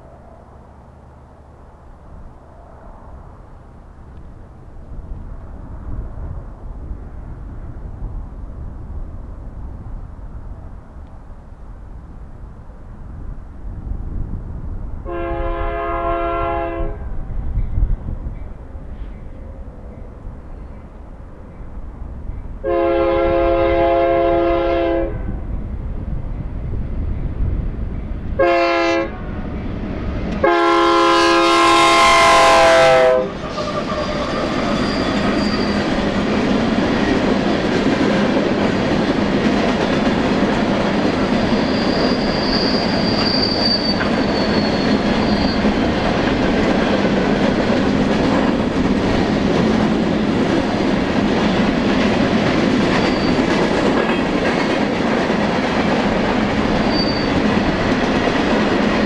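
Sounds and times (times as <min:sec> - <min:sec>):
freight cars rumbling on rails: 0:00.0 - 0:59.0
locomotive air horn blast: 0:15.0 - 0:17.1, 0:22.6 - 0:25.4, 0:28.4 - 0:29.2, 0:30.4 - 0:34.4
faint wheel squeal: 0:33.3 - 0:35.9, 0:41.4 - 0:45.8, 0:53.0 - 0:53.5, 0:56.8 - 0:57.4.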